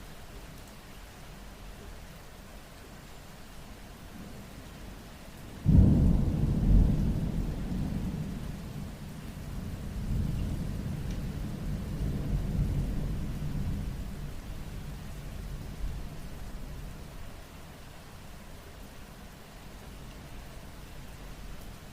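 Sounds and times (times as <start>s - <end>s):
steady rain: 0.0s - 21.9s
deep rumble of thunder: 5.6s - 17.0s.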